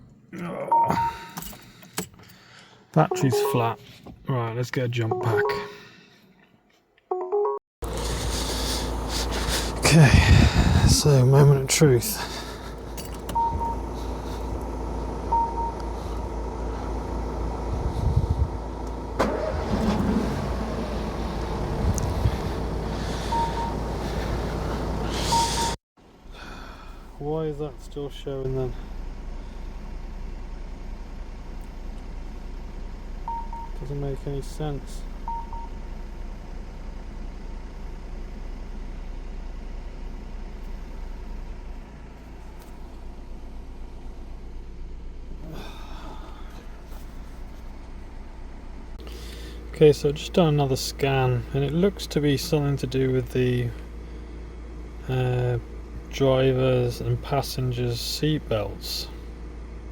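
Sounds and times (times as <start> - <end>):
dashboard chime: 3.0 - 3.9, 5.1 - 5.9
car engine running: 7.8 - 59.9
car starter cranking: 18.8 - 25.8.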